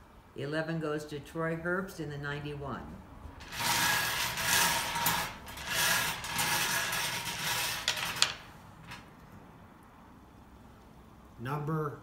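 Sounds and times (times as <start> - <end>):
balls rattling in draw cage: 3.4 - 9.1.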